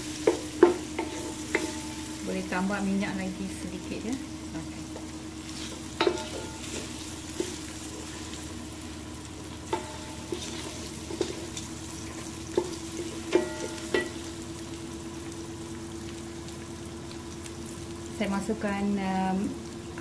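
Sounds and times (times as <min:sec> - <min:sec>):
onion and spices sizzling in oil: 0:00.0 - 0:20.0
wooden spoon knocking on metal pot: 0:06.0 - 0:06.8, 0:12.6 - 0:14.2.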